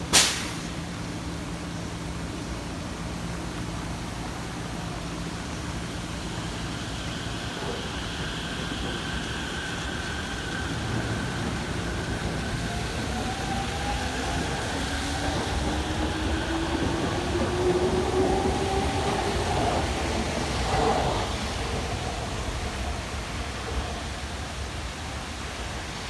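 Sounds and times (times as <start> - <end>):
rain hissing: 0.0 - 17.2.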